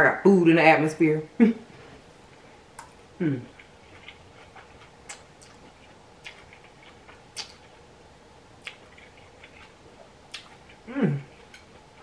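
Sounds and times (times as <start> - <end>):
chewing noodles: 3.5 - 7.8, 8.6 - 12.0
wet mouth clicks: 7.4 - 7.6.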